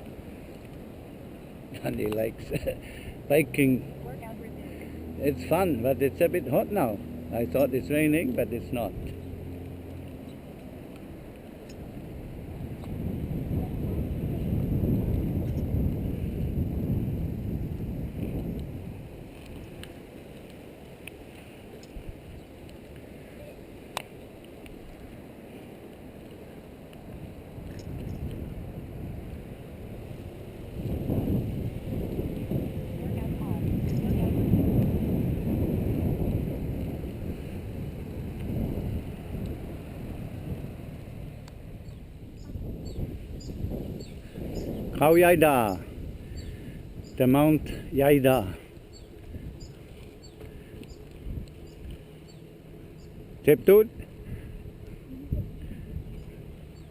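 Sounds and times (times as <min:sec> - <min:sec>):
wind buffeting microphone: 0:00.0 - 0:25.4, 0:26.0 - 0:56.9
faint ticks: 0:09.0 - 0:11.9, 0:48.7 - 0:52.4.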